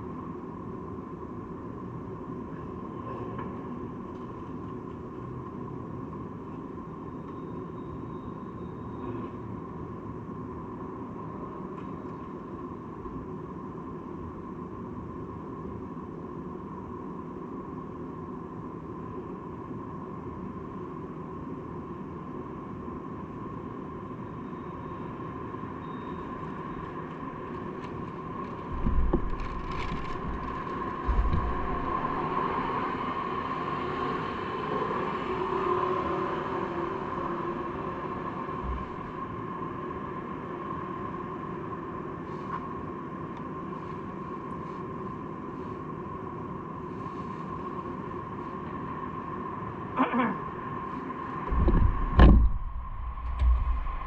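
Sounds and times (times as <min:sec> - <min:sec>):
street traffic: 0:01.2 - 0:15.3, 0:23.4 - 0:54.0
bicycle riding noise: 0:27.2 - 0:33.4
low thumps: 0:28.7 - 0:32.8, 0:38.6 - 0:39.3, 0:51.5 - 0:54.0.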